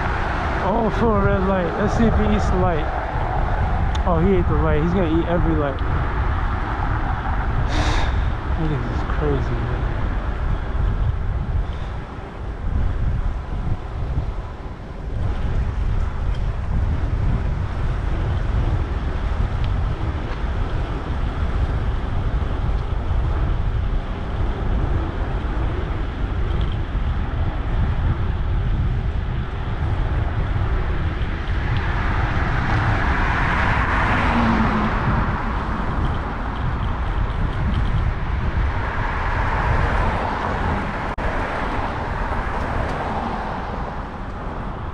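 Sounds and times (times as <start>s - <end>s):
wind rumbling on microphone: 0.0s - 44.9s
vehicle passing close by: 31.7s - 37.2s.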